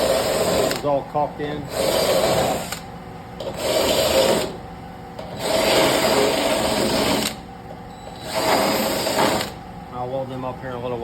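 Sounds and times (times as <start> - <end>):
drill grinding metal panel: 0.0 - 0.9, 1.7 - 2.8, 3.4 - 4.6, 5.2 - 7.4, 8.2 - 9.6.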